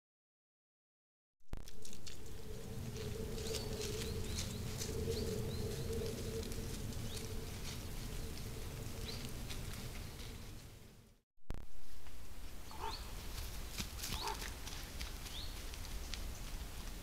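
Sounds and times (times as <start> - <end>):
steady low hum: 1.6 - 13.7.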